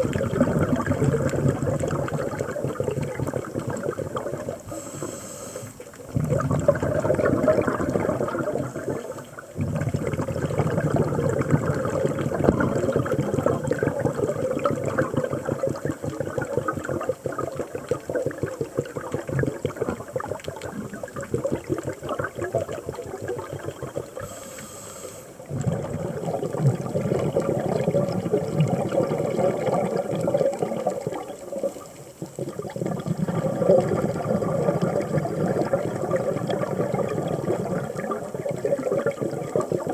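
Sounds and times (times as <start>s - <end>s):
underwater bubbles rushing: 0.0s - 24.8s, 25.4s - 39.9s.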